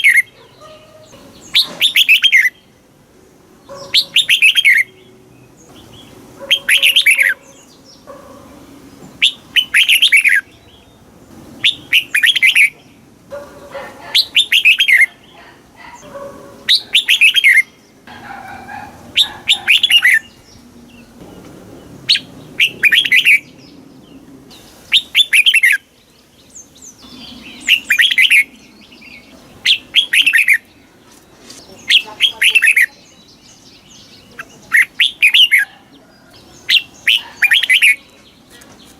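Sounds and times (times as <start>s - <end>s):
bird singing bright phrases: 0.0s - 2.9s, 3.5s - 38.9s.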